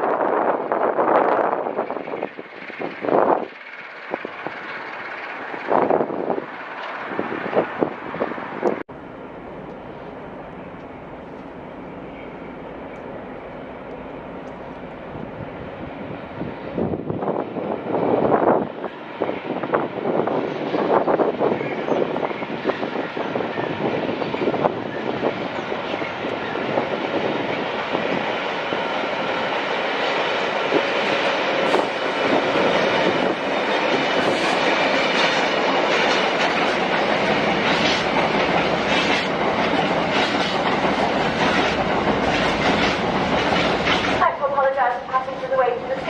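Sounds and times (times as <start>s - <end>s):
train rumbling past: 0.0s - 46.0s
wheels clacking over rail joints: 1.8s - 8.8s, 25.4s - 44.3s.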